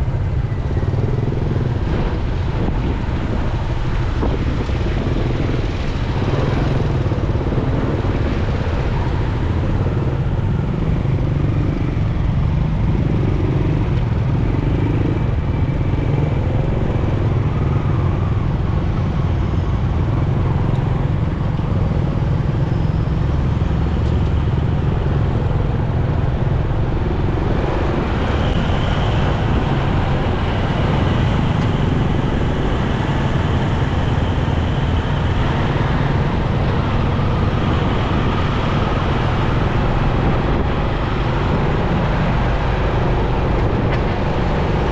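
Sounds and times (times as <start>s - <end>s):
motorcycle engine rumble: 0.0s - 44.9s
road and traffic noise: 0.0s - 44.9s.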